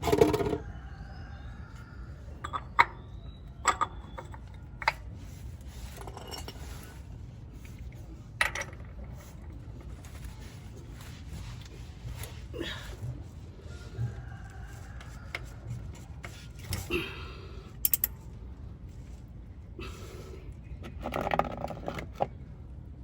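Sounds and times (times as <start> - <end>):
metallic clinks and knocks: 17.8 - 18.2.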